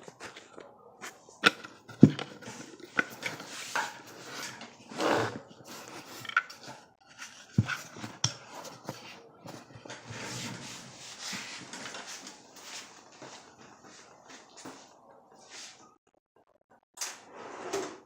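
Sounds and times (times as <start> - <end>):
objects clicking and knocking: 0.0 - 10.1
rustling or scraping noise: 0.0 - 15.8.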